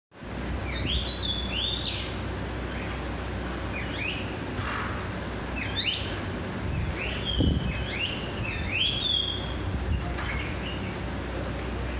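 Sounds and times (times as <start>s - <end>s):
steady low rumble: 0.2s - 11.9s
birds giving whistled calls: 0.6s - 3.1s, 3.7s - 4.9s, 5.5s - 11.1s.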